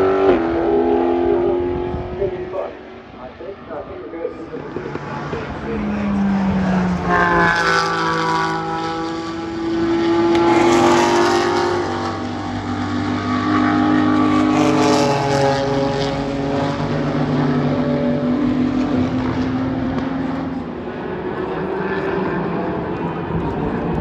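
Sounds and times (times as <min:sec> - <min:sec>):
race car engines passing: 0:00.0 - 0:24.0.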